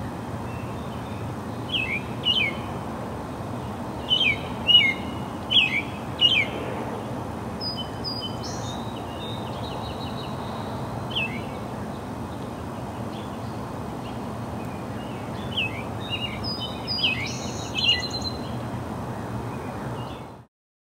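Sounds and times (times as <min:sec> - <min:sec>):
birds chirping: 0:04.0 - 0:06.6, 0:13.1 - 0:18.6.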